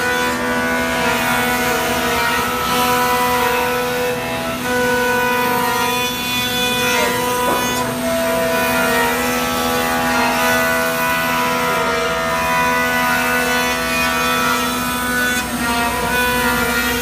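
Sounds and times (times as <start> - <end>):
cnc router whining cutting wood: 0.0 - 17.0.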